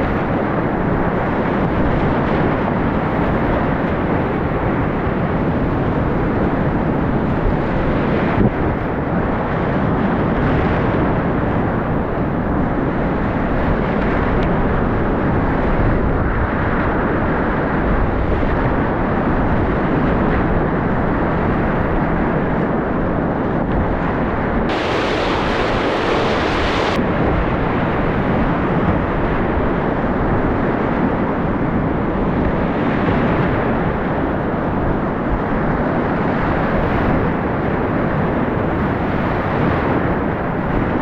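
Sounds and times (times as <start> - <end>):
river whitewater rushing: 24.7 - 27.0.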